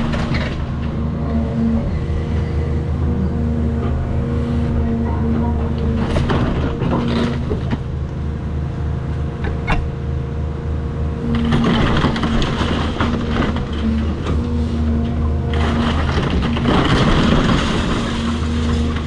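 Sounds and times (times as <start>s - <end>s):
excavator diesel engine running: 0.0s - 19.0s
debris crunching and cracking: 11.4s - 14.5s, 15.5s - 19.0s.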